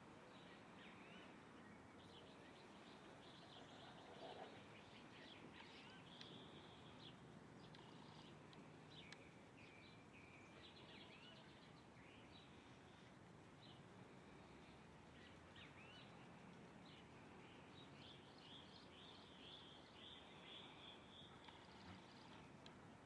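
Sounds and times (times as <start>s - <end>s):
steady faint hiss: 0.0s - 23.0s
faint bird chirps: 0.3s - 22.7s.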